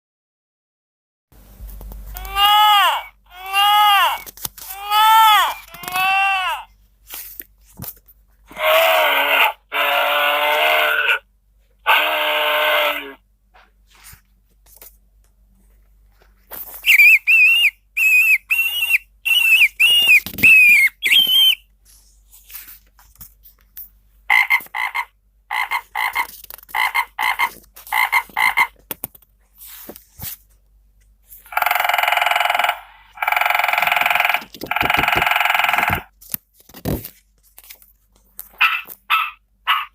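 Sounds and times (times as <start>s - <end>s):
held pitched animal calls: 8.5s - 11.2s, 11.8s - 13.2s, 31.5s - 36.1s
fast high chirps: 16.8s - 21.6s.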